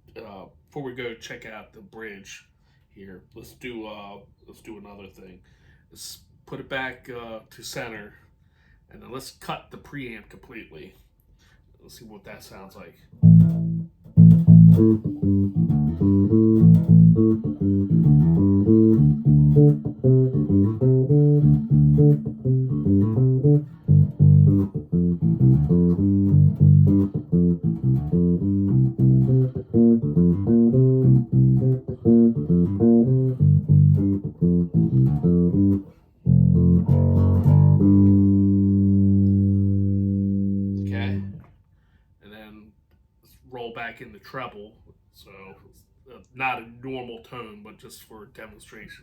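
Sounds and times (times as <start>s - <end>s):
electric bass plucked notes: 13.2s - 41.4s.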